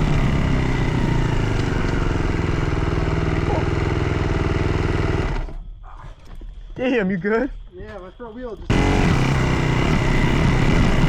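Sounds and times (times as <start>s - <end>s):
dirt bike engine running: 0.0s - 5.6s, 8.7s - 11.0s.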